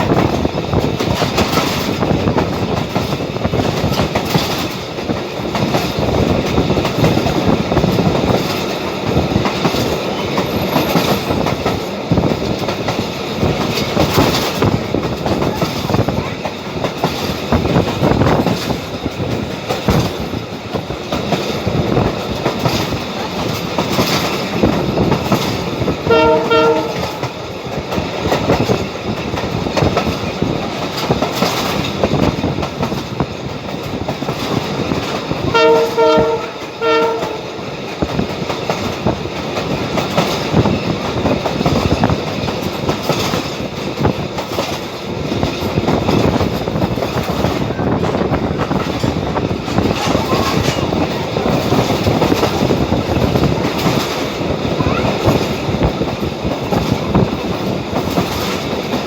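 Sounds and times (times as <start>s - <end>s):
train rumbling: 0.0s - 59.0s
train wheels clattering over rail joints: 0.0s - 59.0s
train horn short blasts: 26.0s - 27.4s, 35.4s - 37.6s.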